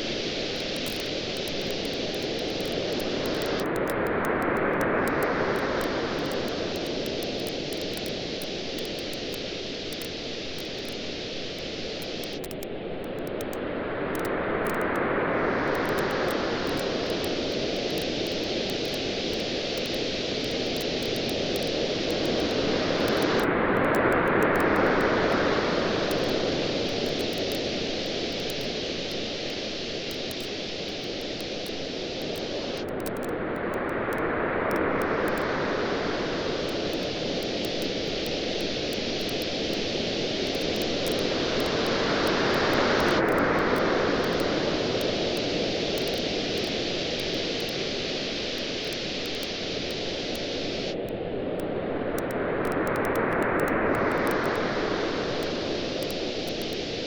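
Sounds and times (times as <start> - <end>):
waves washing onto beach: 0.0 - 57.0
bonfire crackling: 15.8 - 23.4.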